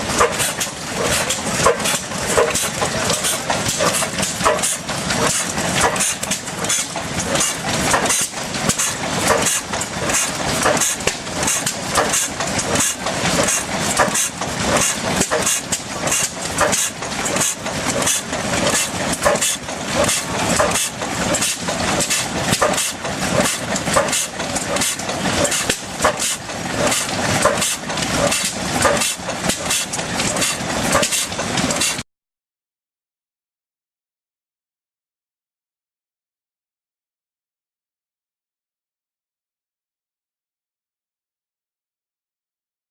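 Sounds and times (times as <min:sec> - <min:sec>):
stationary engine running: 0:00.0 - 0:32.0.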